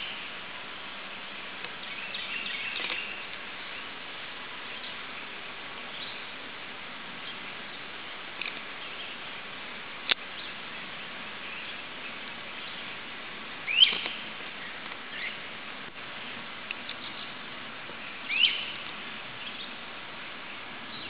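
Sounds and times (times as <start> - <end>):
steady outdoor hiss: 0.0 - 21.0
small bird chirping: 1.8 - 3.9, 13.6 - 15.4, 18.0 - 19.8.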